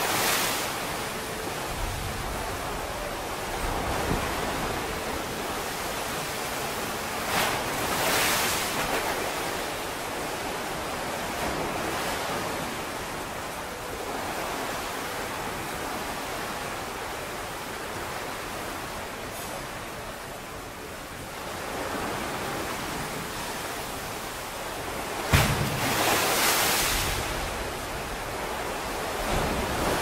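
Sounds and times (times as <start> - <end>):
water crashing: 0.0 - 13.3, 22.0 - 30.0
pool water sloshing and surging: 0.0 - 30.0.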